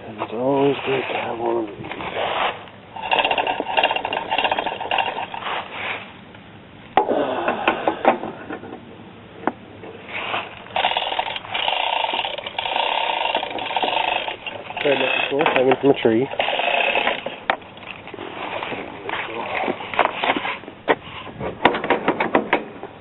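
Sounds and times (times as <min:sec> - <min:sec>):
mechanical lift ratcheting: 0:02.9 - 0:05.6, 0:10.6 - 0:18.0.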